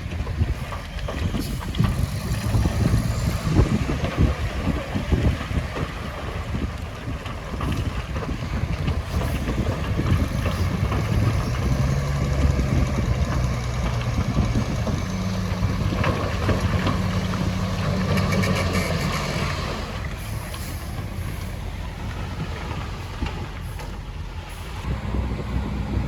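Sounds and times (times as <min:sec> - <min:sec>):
wind on microphone: 0:00.0 - 0:19.8, 0:24.8 - 0:26.0
heavy diesel engine running: 0:00.0 - 0:26.0.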